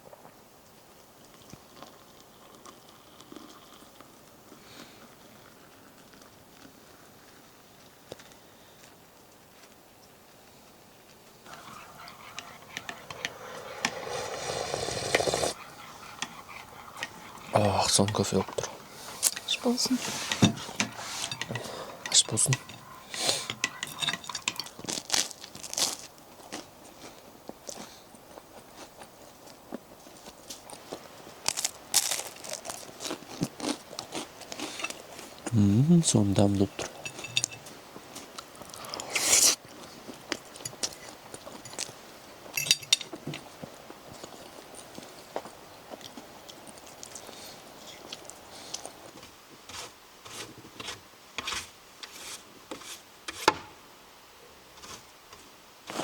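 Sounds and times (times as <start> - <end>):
food crunching while chewed: 1.2 - 8.5, 22.5 - 35.5, 36.7 - 42.5, 43.9 - 49.2
faint hiss: 12.6 - 24.4, 34.7 - 40.1
handling clicks and knocks: 20.3 - 24.9, 36.5 - 37.7, 42.6 - 43.4.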